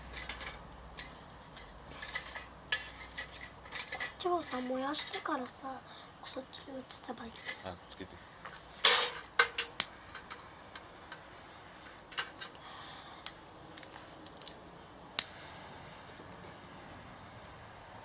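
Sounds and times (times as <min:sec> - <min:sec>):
low steady background noise: 0:00.0 - 0:18.0
sharp clicks and snaps: 0:09.8 - 0:10.8, 0:13.2 - 0:15.4.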